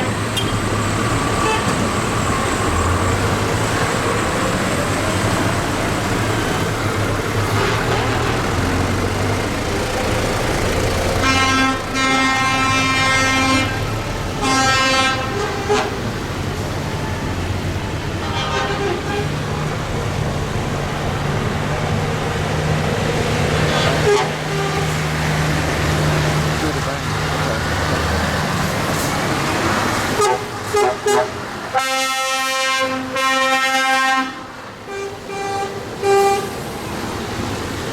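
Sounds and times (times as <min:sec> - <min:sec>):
tractor engines running: 0:00.0 - 0:31.8
vehicle horn blasts: 0:11.2 - 0:13.8, 0:14.4 - 0:16.0, 0:18.2 - 0:19.3, 0:23.7 - 0:25.0, 0:30.2 - 0:36.6.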